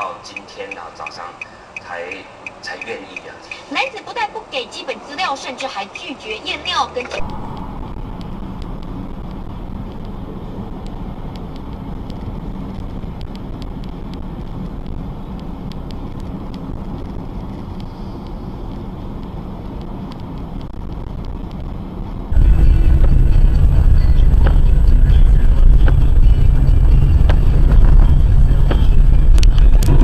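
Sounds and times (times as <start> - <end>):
car road and engine noise: 0.0 - 30.0
faint clicks: 7.0 - 21.6
loud low rumble: 7.2 - 15.2, 20.7 - 30.0.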